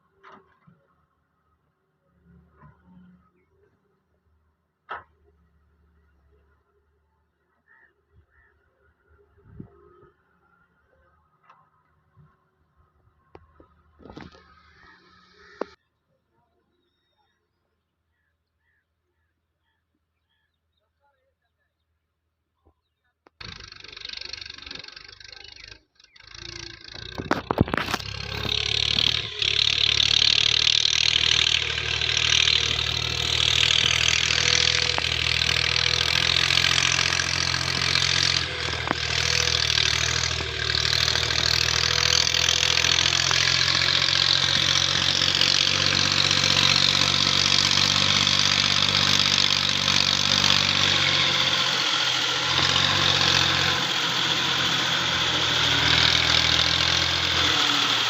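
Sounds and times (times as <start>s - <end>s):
tractor diesel engine starting: 13.3s - 15.8s, 23.4s - 58.0s.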